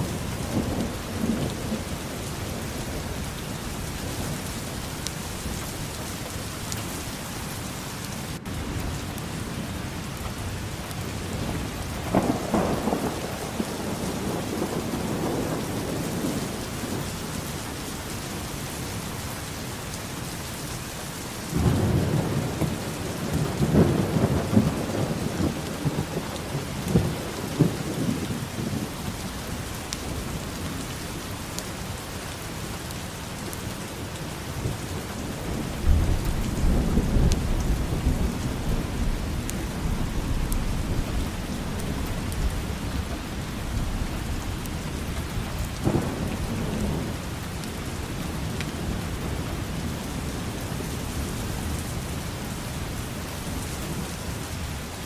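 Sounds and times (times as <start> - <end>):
steady rain: 0.0 - 55.0
rolling thunder: 11.1 - 17.4, 21.5 - 30.6, 34.6 - 52.0.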